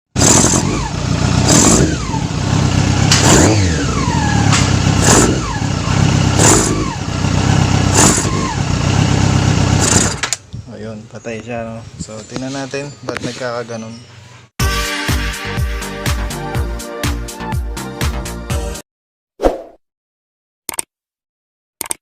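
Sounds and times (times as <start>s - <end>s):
motorcycle engine revving: 0.1s - 10.5s.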